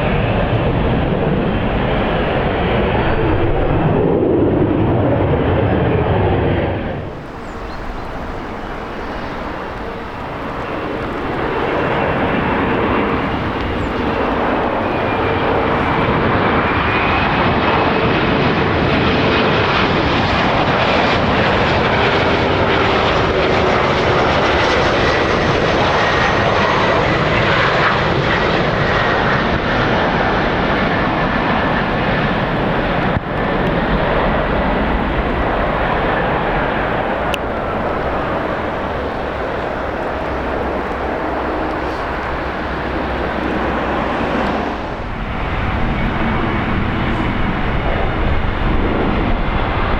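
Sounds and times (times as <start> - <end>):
jet engines rushing: 0.0 - 49.9.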